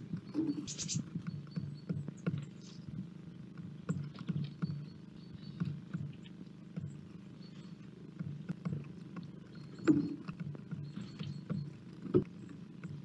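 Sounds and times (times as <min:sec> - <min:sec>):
birds pecking on wooden feeder: 0:00.0 - 0:13.0
high rattling bird call: 0:00.3 - 0:01.1.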